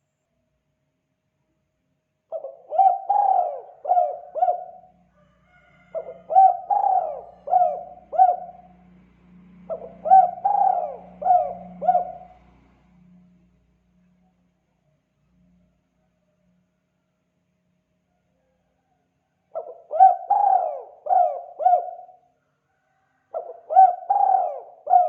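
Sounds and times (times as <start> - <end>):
dove cooing: 2.3 - 5.0, 5.9 - 8.8, 9.6 - 12.5, 19.5 - 22.2, 23.3 - 25.0.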